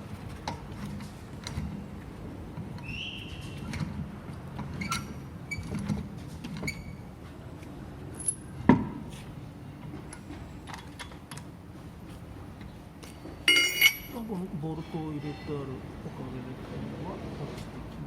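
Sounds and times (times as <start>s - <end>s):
metallic clinks of bolts and tools: 13.5s - 14.2s.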